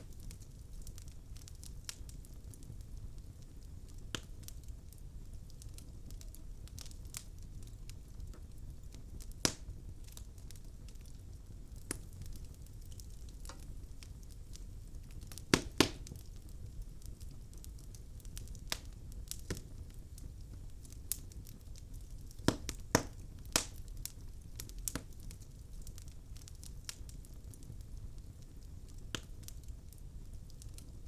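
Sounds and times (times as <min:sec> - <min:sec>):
fire low rumble: 0:00.0 - 0:31.0
logs crackling and popping: 0:00.0 - 0:31.0.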